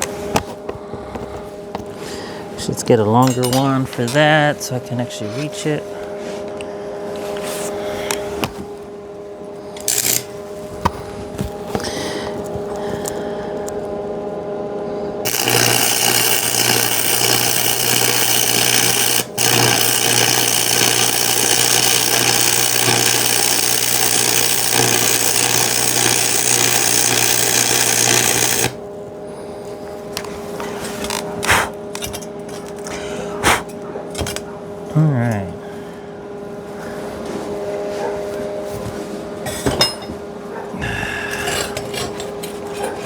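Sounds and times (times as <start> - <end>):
arc welding crackling and buzzing: 0.0 - 14.4, 15.2 - 29.1, 29.7 - 33.0.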